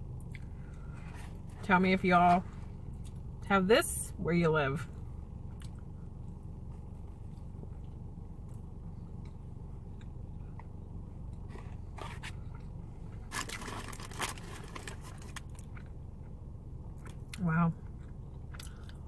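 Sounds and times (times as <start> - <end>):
steady low hum: 0.0 - 19.0
biting and chewing: 5.4 - 19.0.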